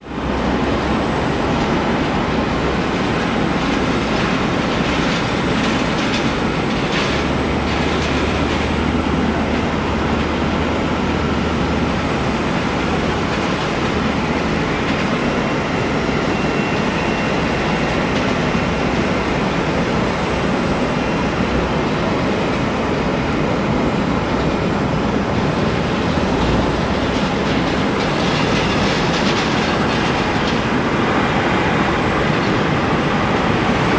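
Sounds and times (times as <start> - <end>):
jet engines roaring: 0.0 - 33.9.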